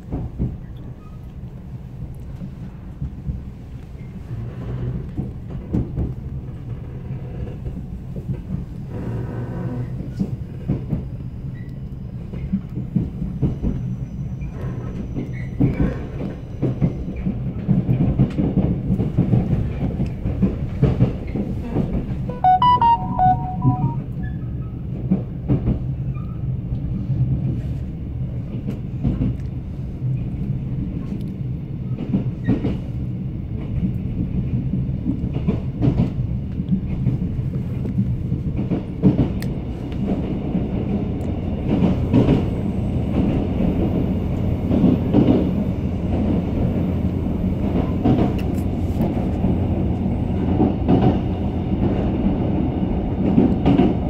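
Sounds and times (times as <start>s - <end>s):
train low rumble: 0.0s - 54.0s
brief ringing tone: 22.3s - 24.5s.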